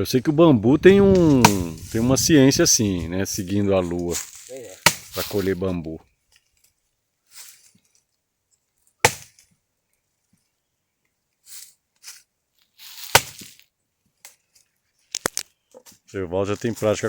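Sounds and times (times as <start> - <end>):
faint rustling: 0.4 - 6.7
axe chopping wood: 4.8 - 5.2, 9.0 - 9.4.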